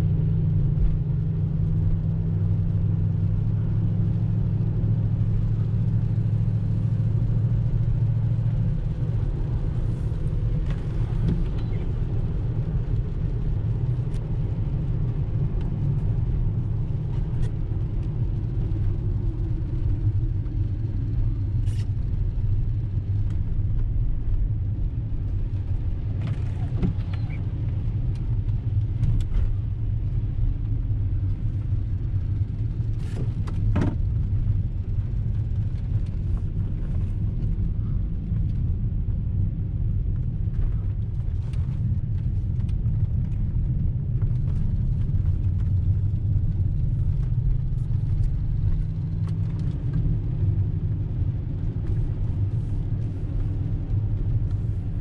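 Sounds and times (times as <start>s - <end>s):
engine deep rumble: 0.0s - 55.0s.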